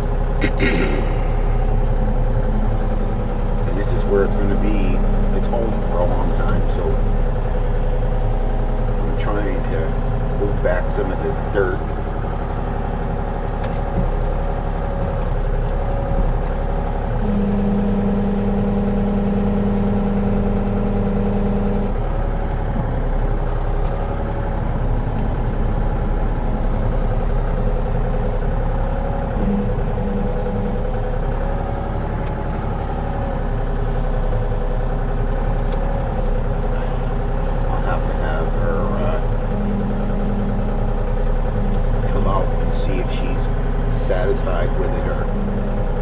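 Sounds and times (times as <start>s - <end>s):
steady low whine: 0.0s - 13.2s, 32.8s - 46.0s
diesel earthmover engine running: 0.0s - 46.0s.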